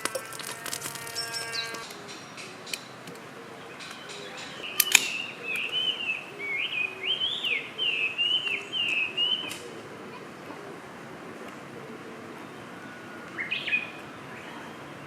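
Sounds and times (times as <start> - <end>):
songbird warbling: 0.0 - 10.2
sharp clicks: 3.8 - 5.8.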